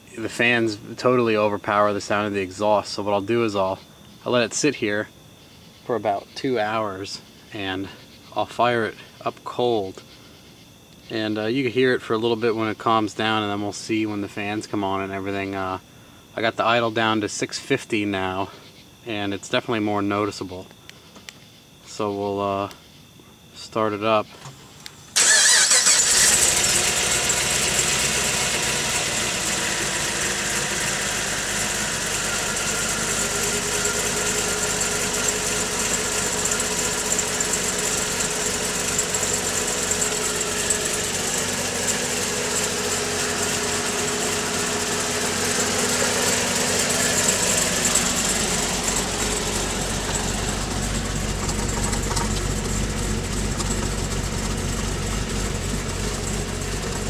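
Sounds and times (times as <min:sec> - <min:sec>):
car engine starting and idling: 0:25.2 - 0:57.0
deep low rumble: 0:40.7 - 0:57.0.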